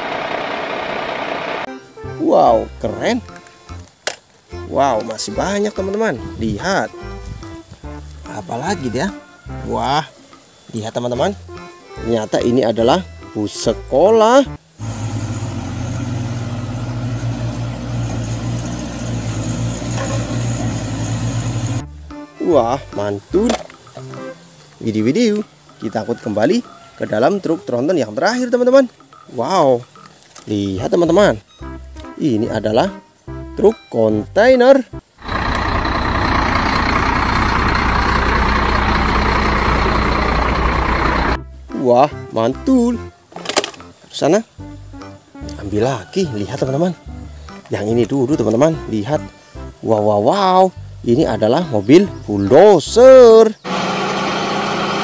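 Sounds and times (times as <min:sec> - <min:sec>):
road noise: 0:00.0 - 0:01.9, 0:14.2 - 0:33.7, 0:34.9 - 0:41.7, 0:43.2 - 0:55.0
bus engines humming: 0:00.0 - 0:02.0, 0:14.5 - 0:30.4, 0:35.0 - 0:41.7, 0:53.6 - 0:55.0.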